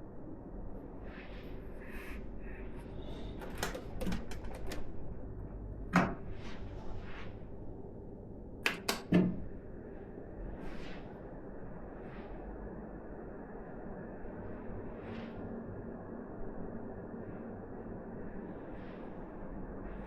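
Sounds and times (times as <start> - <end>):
knocks of computer parts: 8.7 - 9.4.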